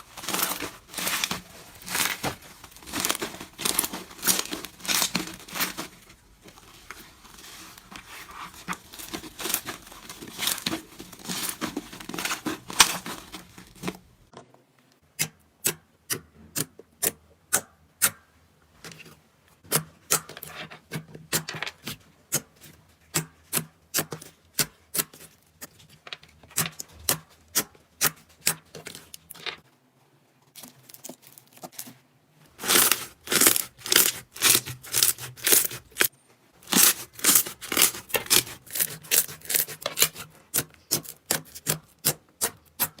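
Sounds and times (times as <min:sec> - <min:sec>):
slime crackling by hand: 0:00.0 - 0:14.1, 0:32.6 - 0:41.7.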